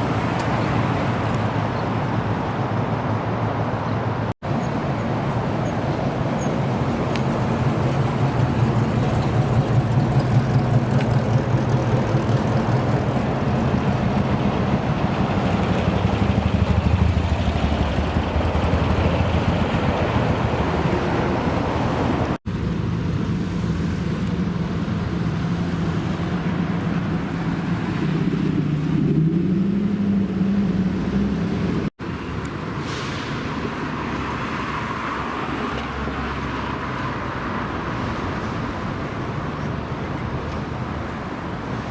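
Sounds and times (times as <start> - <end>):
car engine rumbling: 0.0 - 32.8.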